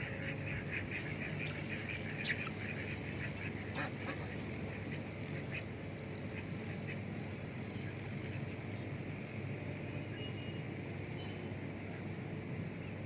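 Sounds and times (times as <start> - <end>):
ducks quacking: 0.0 - 5.7.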